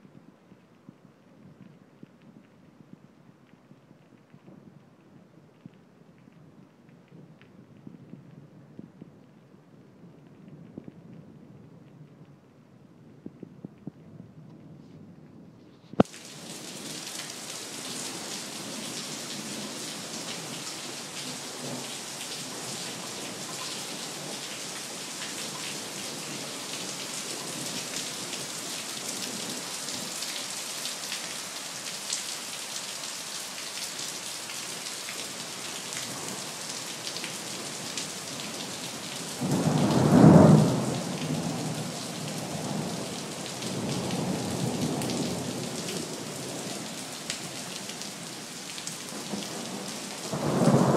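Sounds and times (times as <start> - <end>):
steady rain falling: 0.0 - 50.9
thunder clap and rumble: 39.4 - 41.8, 49.1 - 50.9.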